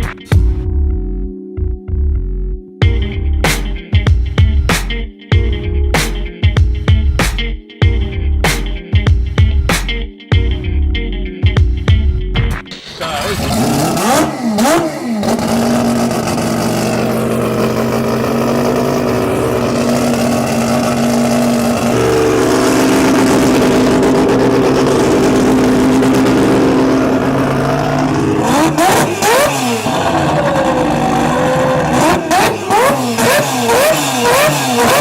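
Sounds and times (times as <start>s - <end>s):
rotary engine revving: 12.8s - 35.0s.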